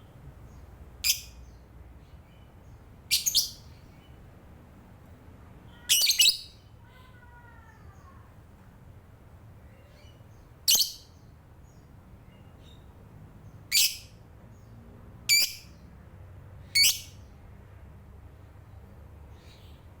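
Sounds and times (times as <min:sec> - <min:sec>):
lovebird high-pitched calls: 0:01.0 - 0:01.6, 0:03.1 - 0:04.1, 0:05.7 - 0:06.7, 0:09.8 - 0:11.2, 0:13.7 - 0:14.2, 0:15.3 - 0:15.8, 0:16.6 - 0:17.3.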